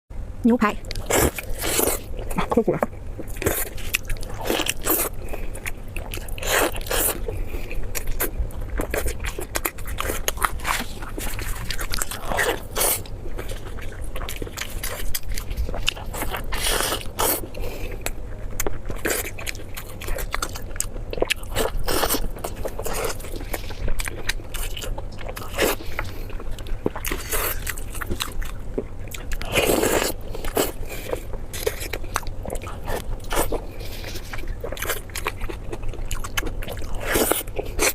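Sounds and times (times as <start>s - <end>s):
person chewing crunchy food: 0.8s - 37.9s.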